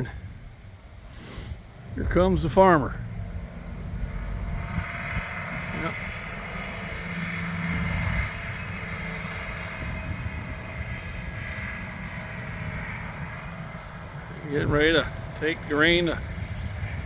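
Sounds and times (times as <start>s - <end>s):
tractor engine passing: 0.0s - 17.0s.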